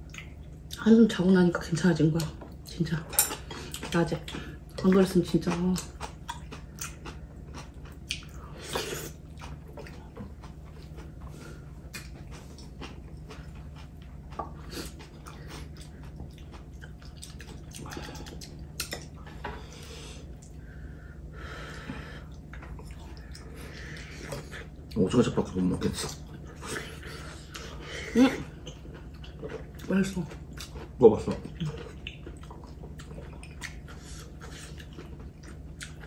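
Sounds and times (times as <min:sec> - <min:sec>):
low steady hum: 0:00.0 - 0:36.0
people chewing: 0:00.0 - 0:36.0.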